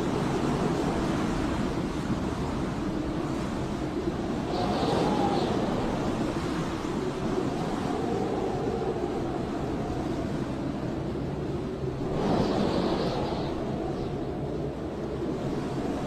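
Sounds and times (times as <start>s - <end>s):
wind howling and whistling: 0.0s - 16.0s.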